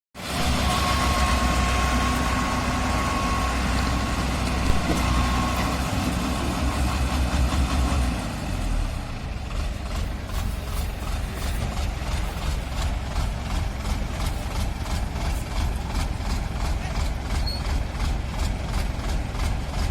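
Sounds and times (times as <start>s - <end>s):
combine harvester engine running: 0.2s - 19.9s
deep low hum: 4.4s - 5.9s.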